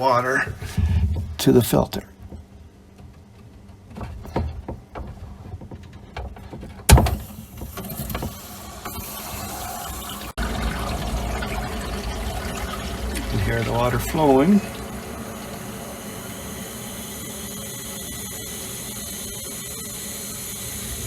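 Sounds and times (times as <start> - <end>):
water hissing through filter lines: 7.0 - 21.0.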